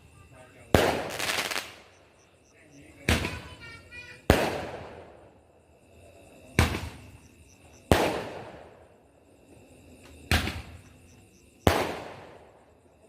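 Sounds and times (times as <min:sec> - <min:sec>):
loud fireworks bangs: 0:00.0 - 0:02.0, 0:02.9 - 0:05.4, 0:06.5 - 0:08.8, 0:10.3 - 0:10.9, 0:11.6 - 0:12.6.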